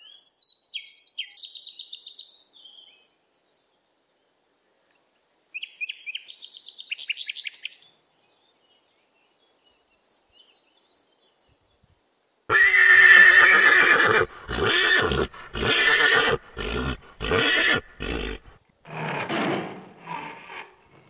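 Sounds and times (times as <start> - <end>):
horse neighing: 12.5 - 19.3.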